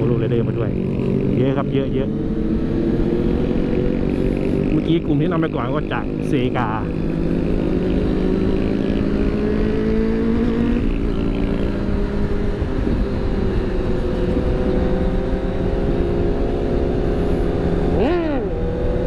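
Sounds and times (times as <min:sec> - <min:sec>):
motorcycle engine running: 0:00.0 - 0:19.0
wind rumbling on microphone: 0:05.9 - 0:19.0.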